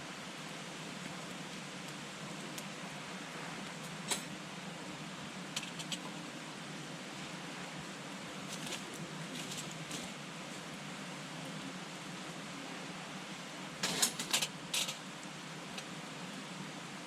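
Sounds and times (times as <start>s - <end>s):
campfire hissing: 0.0s - 17.0s
fire crackles and pops: 0.3s - 6.4s, 8.1s - 10.8s.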